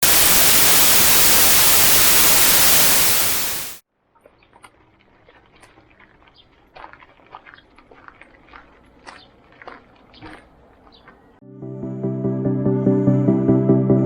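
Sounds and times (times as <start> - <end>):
white noise static hiss: 0.0 - 3.8.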